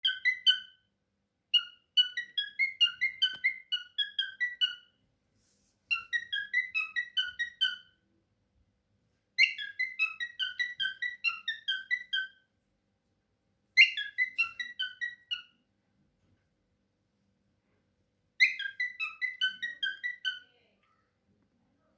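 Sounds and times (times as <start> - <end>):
cockatiel whistling: 0.0 - 0.8, 1.5 - 4.9, 5.9 - 8.0, 9.4 - 12.4, 13.8 - 15.6, 18.4 - 20.4.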